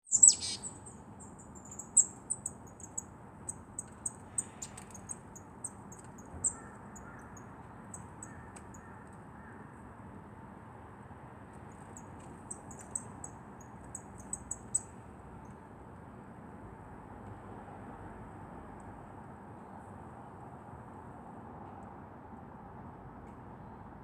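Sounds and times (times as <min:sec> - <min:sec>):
high thin bird calls: 0:00.0 - 0:03.0.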